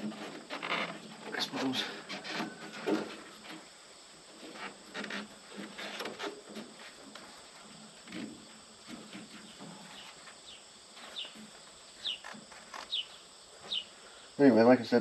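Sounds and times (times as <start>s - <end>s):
knocks and rubbing on metal: 4.3s - 10.4s
bird chirping: 9.4s - 14.3s.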